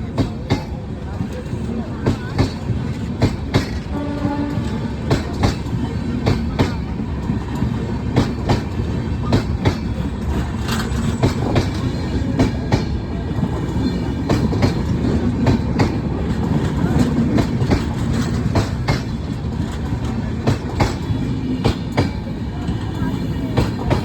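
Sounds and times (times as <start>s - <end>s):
train rumbling on track: 0.0s - 24.0s
wheels clicking over rail joints: 0.0s - 24.0s.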